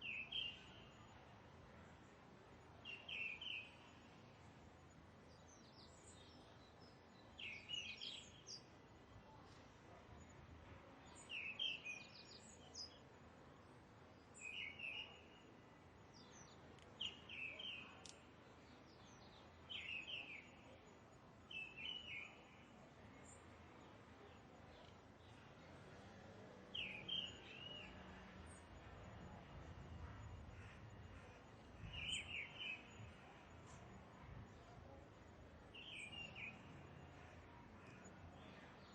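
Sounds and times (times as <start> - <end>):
bird chirping: 5.6 - 8.7, 16.1 - 20.8, 21.5 - 22.5, 26.7 - 28.9, 30.1 - 33.4, 35.7 - 38.9.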